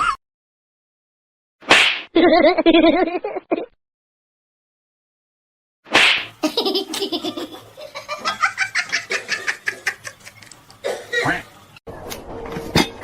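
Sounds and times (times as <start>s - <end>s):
person laughing: 6.4s - 10.5s.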